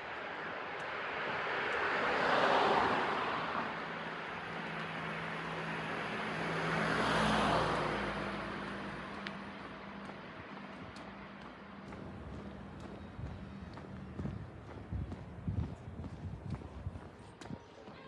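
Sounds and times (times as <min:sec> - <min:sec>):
vehicles passing: 0:00.1 - 0:17.5.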